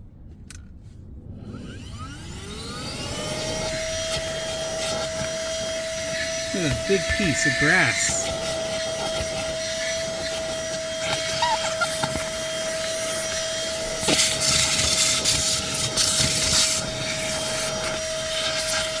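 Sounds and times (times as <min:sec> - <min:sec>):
handheld vacuum motor whine: 0:01.3 - 0:19.0
nozzle rubbing over carpet: 0:08.2 - 0:19.0.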